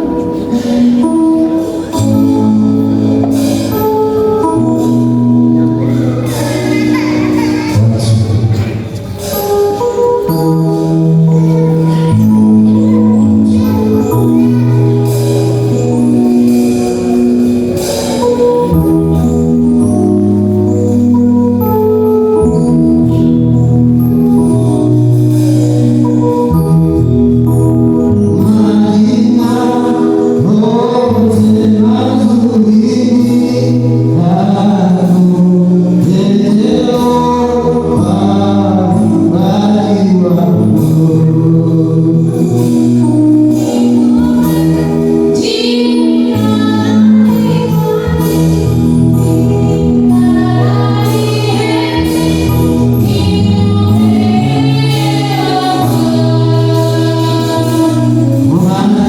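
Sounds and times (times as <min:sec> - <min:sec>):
choir singing gospel: 0:05.6 - 0:09.5, 0:28.4 - 0:59.0
sustained bass line: 0:10.2 - 0:59.0.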